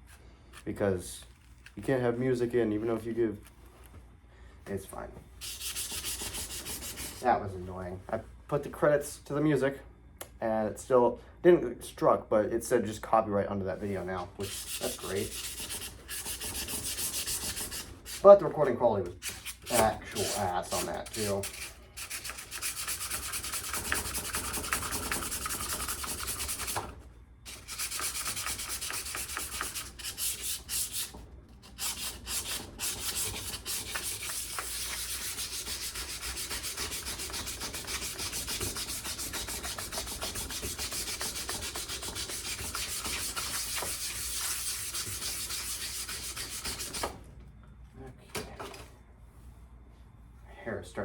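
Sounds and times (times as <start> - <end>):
sandpaper rubbing on metal: 5.4 - 7.3, 14.4 - 26.8, 27.5 - 47.1.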